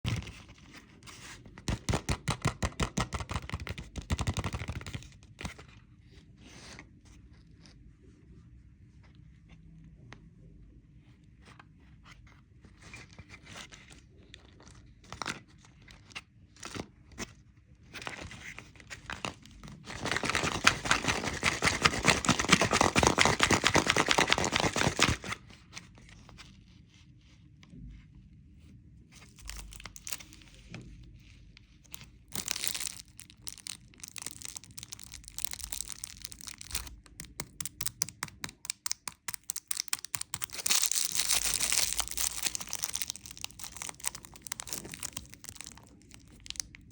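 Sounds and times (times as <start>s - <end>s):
candy wrapper crinkling: 19.9s - 25.4s, 29.2s - 30.7s, 31.8s - 46.9s
wrapper tearing: 19.9s - 25.4s, 29.3s - 30.6s, 31.9s - 46.9s.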